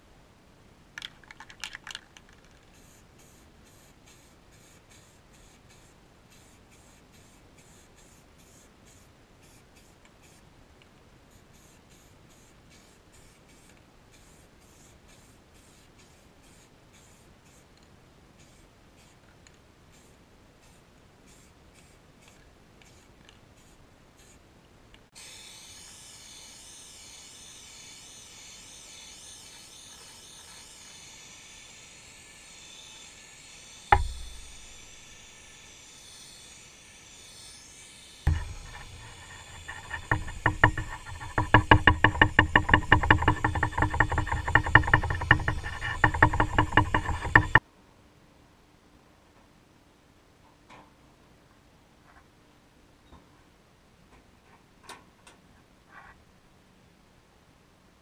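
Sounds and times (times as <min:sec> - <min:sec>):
plastic parts rattling: 0:01.0 - 0:02.6
plastic parts clicking and scraping: 0:01.0 - 0:02.7, 0:38.3 - 0:47.6
paint spray gun hissing: 0:02.7 - 0:10.4, 0:11.5 - 0:17.6, 0:33.9 - 0:35.6, 0:38.3 - 0:47.6.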